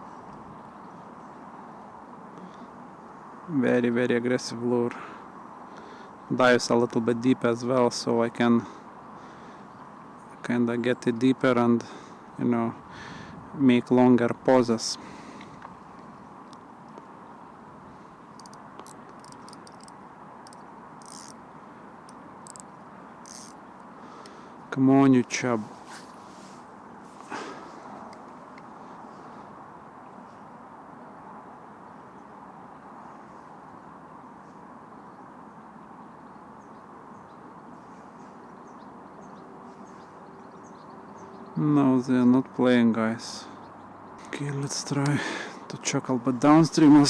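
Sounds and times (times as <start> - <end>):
brief hisses: 25.8 - 27.6.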